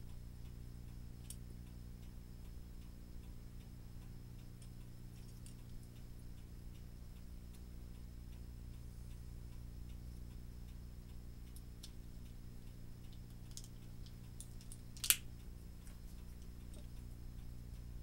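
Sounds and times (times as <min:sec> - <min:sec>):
low steady hum: 0:00.0 - 0:18.0
mechanical clock ticking: 0:00.0 - 0:18.0
sharp click: 0:14.6 - 0:15.3.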